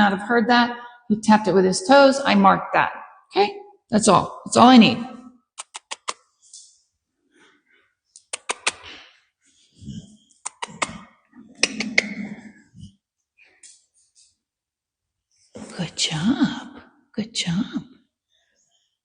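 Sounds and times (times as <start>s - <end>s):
dog toenails clicking: 5.6s - 6.2s.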